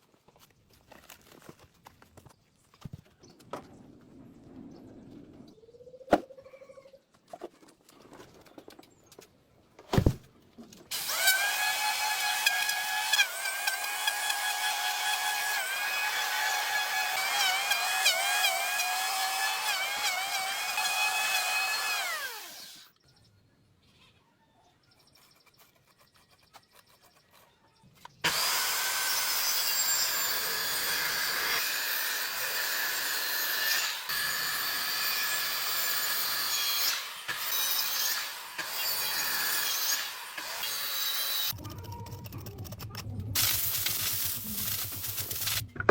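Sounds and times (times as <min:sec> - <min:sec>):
power tool cutting wood: 0:10.9 - 0:22.9, 0:28.2 - 0:41.6.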